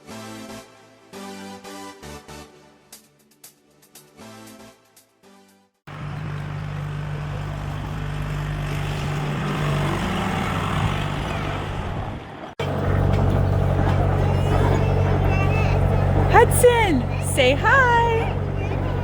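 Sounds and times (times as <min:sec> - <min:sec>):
tractor engine droning: 0:05.9 - 0:19.0.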